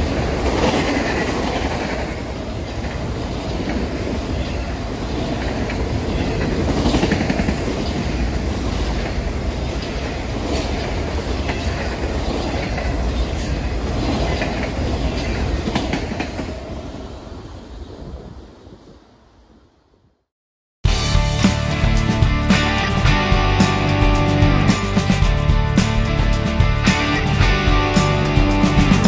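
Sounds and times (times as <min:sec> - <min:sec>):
train wheel clacks: 0:00.0 - 0:04.4, 0:05.2 - 0:16.6
freight train wheels rumbling: 0:00.0 - 0:18.4, 0:20.9 - 0:29.0.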